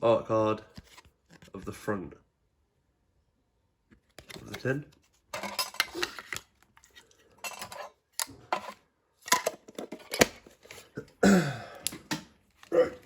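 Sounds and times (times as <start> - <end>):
metal tin clinking and clattering: 5.3 - 6.4, 7.4 - 10.8.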